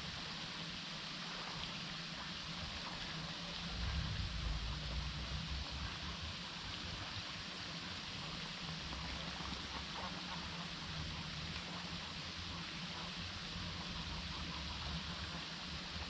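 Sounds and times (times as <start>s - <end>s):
rushing outdoor ambience: 0.0s - 16.0s
low rumble: 3.6s - 6.8s.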